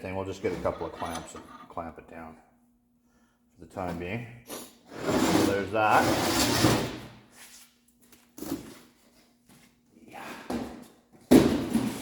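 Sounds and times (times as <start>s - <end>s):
objects being moved knocks: 0.5s - 1.8s.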